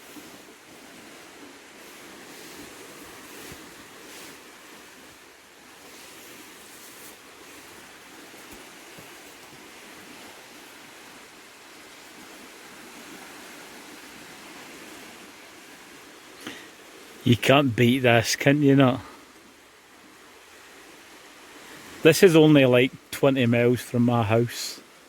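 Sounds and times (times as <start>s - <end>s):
surf washing on a beach: 0.0s - 25.0s.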